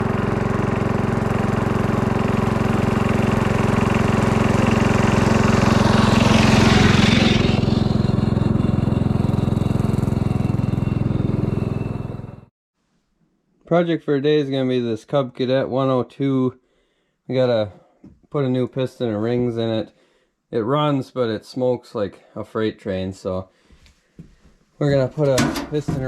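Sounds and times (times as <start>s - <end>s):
small gasoline engine running: 0.0s - 12.5s.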